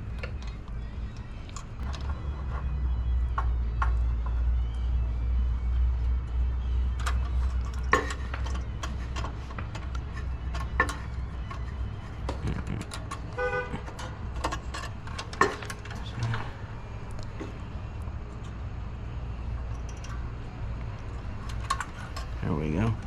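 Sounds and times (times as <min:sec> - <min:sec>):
low steady rumble: 0:00.0 - 0:23.0
clicks and metal taps: 0:06.7 - 0:16.4, 0:19.7 - 0:22.4.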